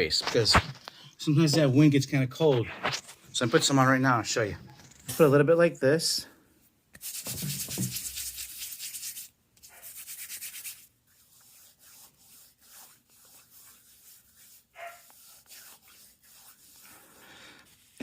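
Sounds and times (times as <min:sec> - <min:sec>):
hands rubbing skin of face: 0:06.9 - 0:18.0.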